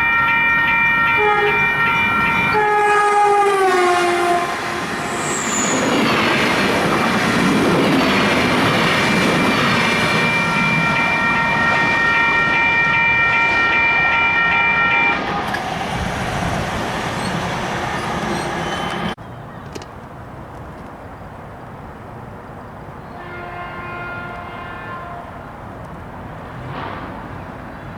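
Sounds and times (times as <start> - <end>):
train rumble and clatter: 0.0 - 27.9
train horn: 1.0 - 5.8, 23.0 - 25.6.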